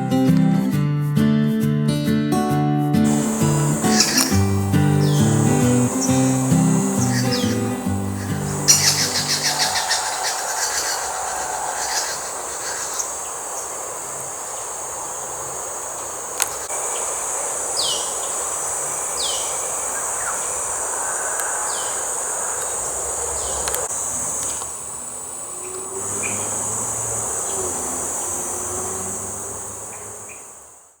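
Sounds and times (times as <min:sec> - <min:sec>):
bird falling call notes: 0:03.1 - 0:14.7
high-pitched insect drone: 0:03.1 - 0:30.8.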